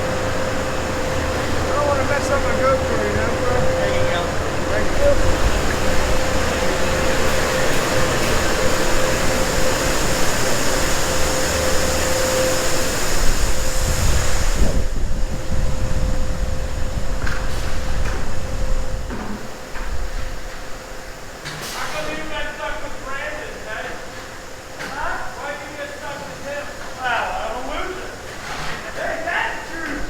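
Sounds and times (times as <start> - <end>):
high hiss: 0.0 - 18.5
machinery whining and rumbling: 0.0 - 30.0.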